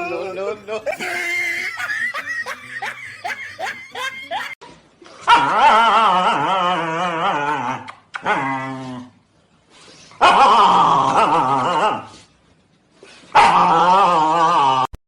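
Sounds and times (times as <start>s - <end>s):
dog long wavering cry: 5.3s - 9.1s, 13.4s - 14.9s.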